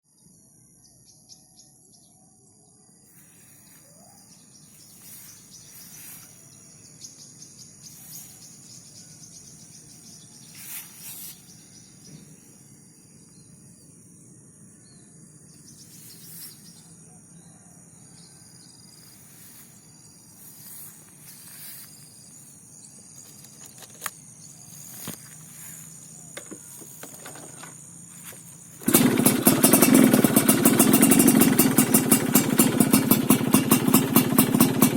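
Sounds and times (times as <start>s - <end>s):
crickets and insects buzzing: 0.1s - 34.9s
two-stroke engine starting: 26.8s - 34.9s.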